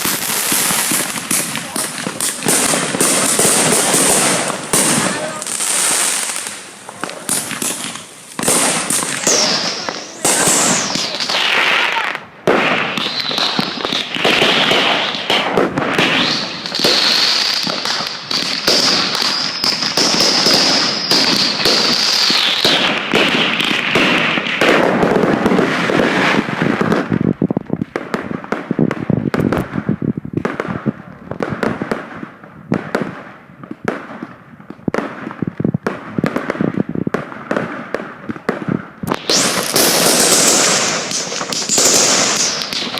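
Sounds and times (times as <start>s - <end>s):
fireworks shrill whistles: 0.0s - 24.8s, 39.1s - 42.9s
fireworks bangs and crackles: 0.0s - 42.9s
sharp pops: 39.0s - 42.9s.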